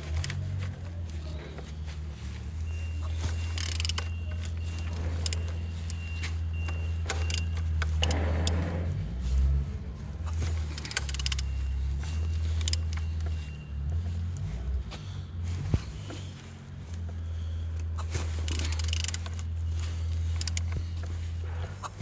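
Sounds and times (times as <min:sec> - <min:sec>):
metallic clicks and knocks: 0:10.5 - 0:11.5.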